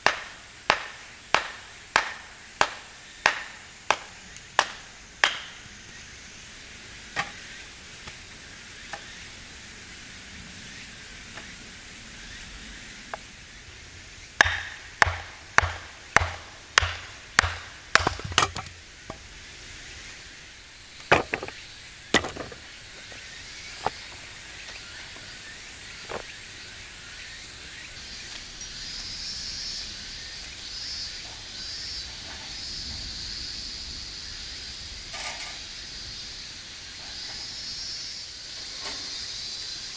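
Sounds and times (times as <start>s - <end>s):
axe chopping firewood: 0.0s - 5.6s, 14.4s - 19.3s, 21.0s - 21.6s, 22.2s - 22.7s
faint steady hiss: 0.0s - 39.9s.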